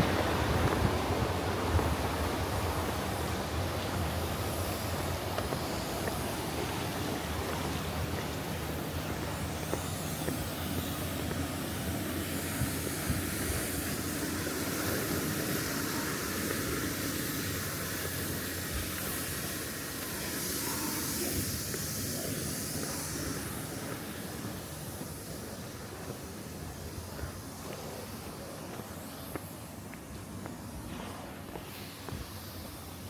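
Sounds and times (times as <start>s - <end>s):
stream water rushing: 0.0s - 26.7s.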